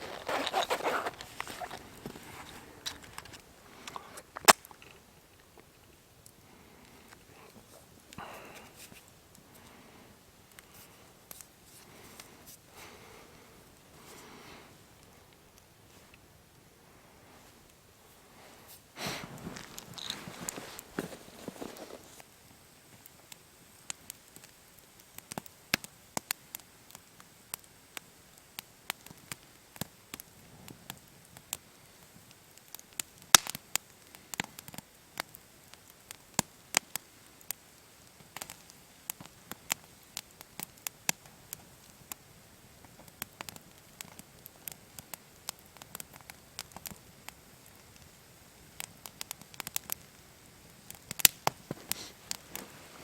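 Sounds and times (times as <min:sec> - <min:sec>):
campfire crackling and popping: 0:00.0 - 0:53.0
faint hiss: 0:00.0 - 0:53.0.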